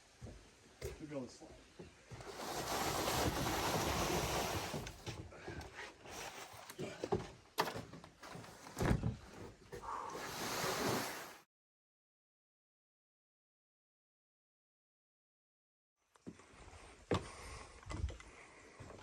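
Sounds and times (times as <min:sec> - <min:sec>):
window scraping in its frame: 0:02.2 - 0:05.1
wooden knocks and thuds: 0:07.0 - 0:09.5.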